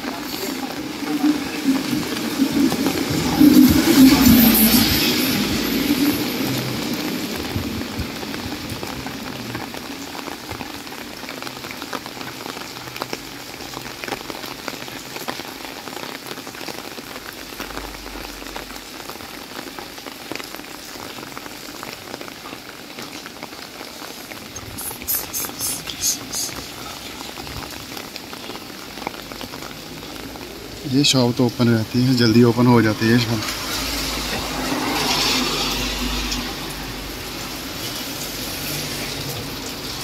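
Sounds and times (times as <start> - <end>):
water drips: 0.0 - 15.2
rain on a wet street: 0.0 - 40.0.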